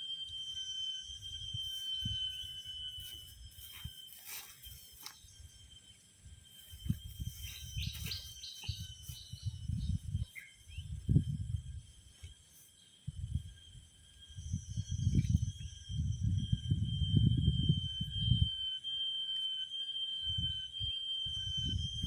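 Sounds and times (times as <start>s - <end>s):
high-pitched insect drone: 0.0s - 22.0s
bird chirps: 1.6s - 11.2s.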